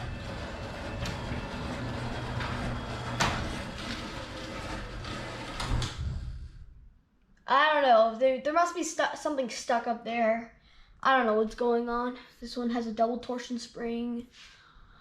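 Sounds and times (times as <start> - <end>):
garage door rollers rumbling: 0.0 - 6.7
garage door opener motor hum: 0.0 - 6.8.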